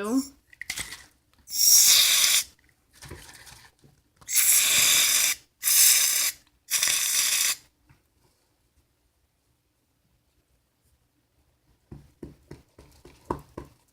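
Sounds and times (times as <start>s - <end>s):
aerosol can spraying: 1.5s - 2.5s, 4.3s - 7.6s.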